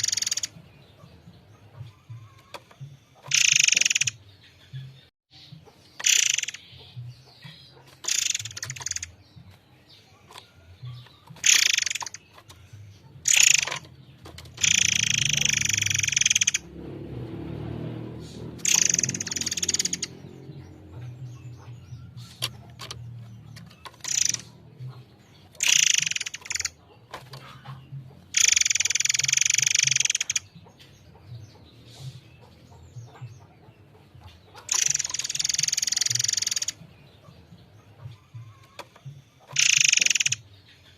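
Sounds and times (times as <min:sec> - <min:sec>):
songbird singing shrill bursts: 0:18.6 - 0:20.1, 0:25.6 - 0:26.7, 0:39.5 - 0:40.4.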